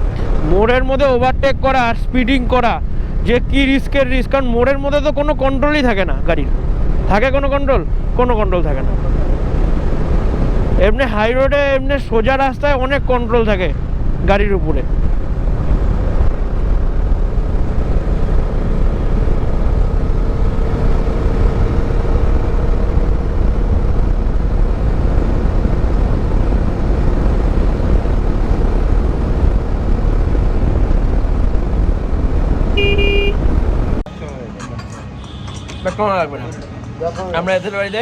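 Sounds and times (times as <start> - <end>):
motorcycle engine and road noise: 0.0 - 38.0
wind buffeting microphone: 12.8 - 34.0
short horn beep: 32.8 - 33.4.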